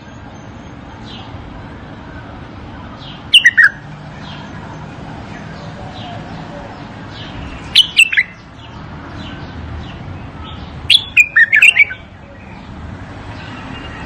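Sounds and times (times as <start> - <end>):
faint bird chirps: 3.1 - 4.5
bird warbling: 3.3 - 3.8, 7.7 - 8.4, 10.9 - 12.1.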